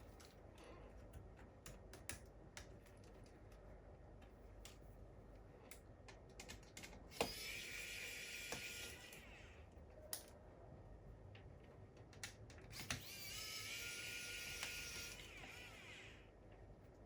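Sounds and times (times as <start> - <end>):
electric screwdriver whining: 7.1 - 9.3, 12.8 - 16.2.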